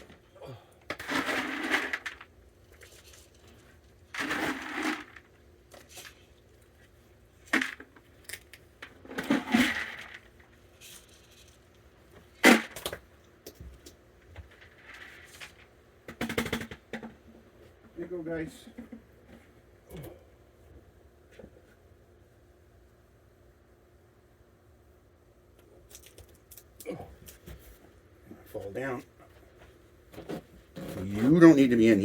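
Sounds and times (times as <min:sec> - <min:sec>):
dry kibble rattling: 0:00.9 - 0:06.3.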